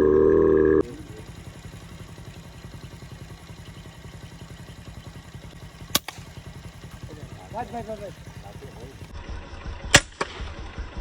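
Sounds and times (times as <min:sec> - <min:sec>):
small engine idling: 0:00.8 - 0:11.0
sharp crack: 0:05.8 - 0:08.0, 0:09.9 - 0:10.5.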